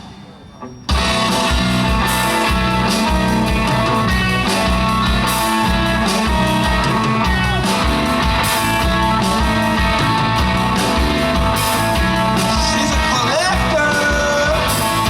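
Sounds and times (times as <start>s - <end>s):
electric guitar: 0.0s - 15.0s
live rock band playing: 0.0s - 15.0s.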